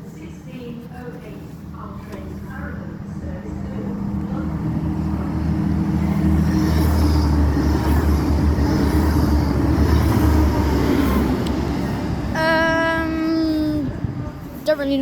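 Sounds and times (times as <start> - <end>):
train wheels running noise: 1.0 - 12.4
diesel train rumble: 2.2 - 15.0.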